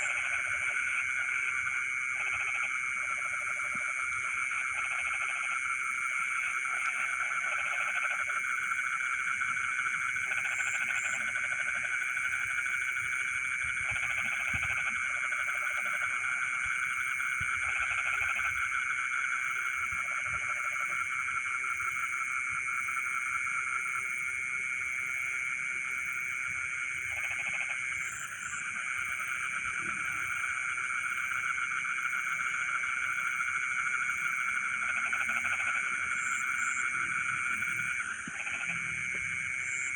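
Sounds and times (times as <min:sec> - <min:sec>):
frogs chorusing: 0:00.0 - 0:39.9
low croaking call: 0:26.9 - 0:39.9.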